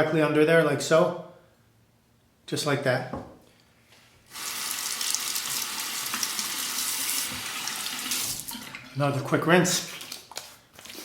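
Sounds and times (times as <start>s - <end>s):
water running from sink tap: 4.3s - 9.0s.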